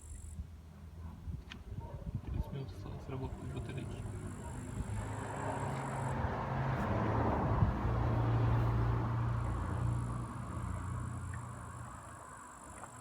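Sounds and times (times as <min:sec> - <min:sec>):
road noise: 0:00.0 - 0:13.0
vehicle engine hum: 0:02.8 - 0:13.0.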